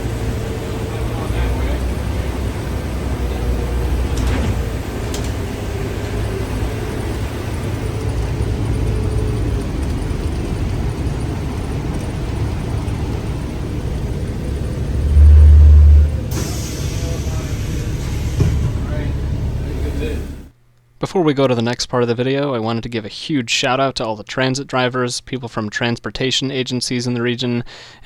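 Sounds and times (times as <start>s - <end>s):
bus engine and road rumble: 0.0s - 20.6s
faint steady whine: 11.0s - 17.9s
loud low boom: 12.8s - 20.2s.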